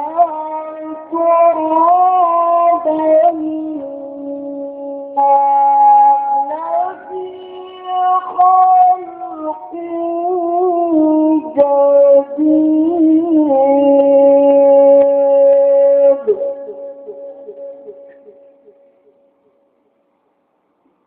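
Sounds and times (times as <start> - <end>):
man reciting melodically: 0.0 - 18.8.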